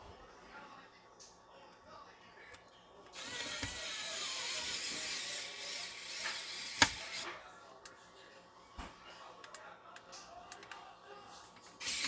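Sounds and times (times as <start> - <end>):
screwdriver driving screw: 3.2 - 7.3.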